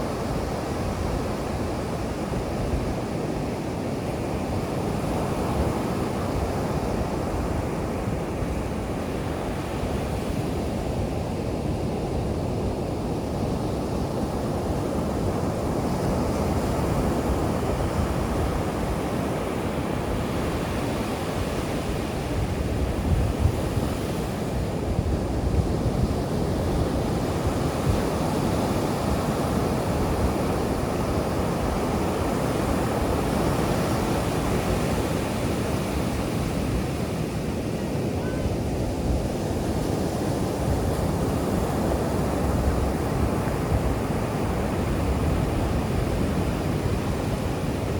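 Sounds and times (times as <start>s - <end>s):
ocean surf washing onto beach: 0.0s - 47.9s.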